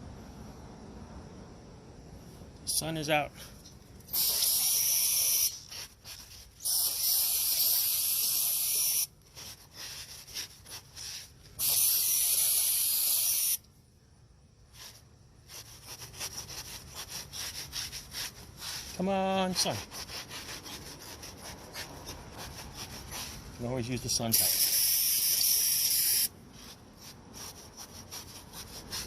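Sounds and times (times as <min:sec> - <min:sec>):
aerosol can spraying: 0:04.1 - 0:06.0, 0:06.6 - 0:09.1, 0:11.0 - 0:13.6, 0:24.3 - 0:26.3.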